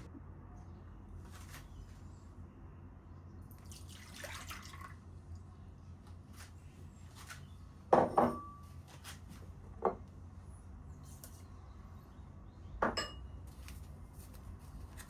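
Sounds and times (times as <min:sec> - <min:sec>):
liquid pouring: 0:03.6 - 0:05.0
dishes clinking: 0:08.0 - 0:08.6, 0:12.8 - 0:13.3.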